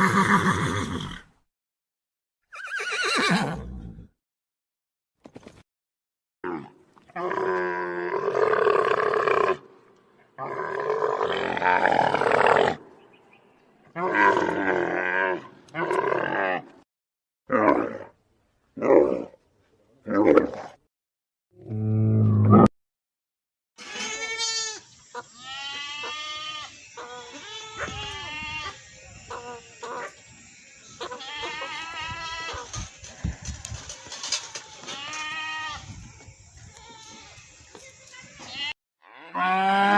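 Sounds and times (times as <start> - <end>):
livestock bleating: 23.8 - 30.1, 30.8 - 33.4, 34.2 - 35.9, 36.7 - 37.6
loud drawn-out animal calls: 23.9 - 35.9.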